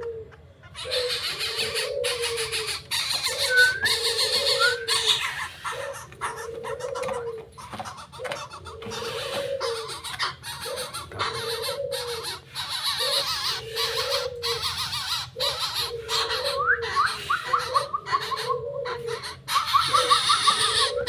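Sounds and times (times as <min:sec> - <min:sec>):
low wavering bird call: 0:03.3 - 0:05.3.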